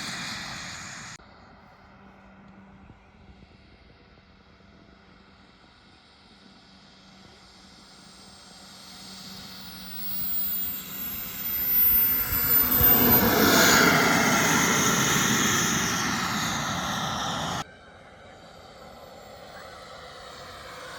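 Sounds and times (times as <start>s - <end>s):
model aircraft engine flying past: 0.0s - 20.9s.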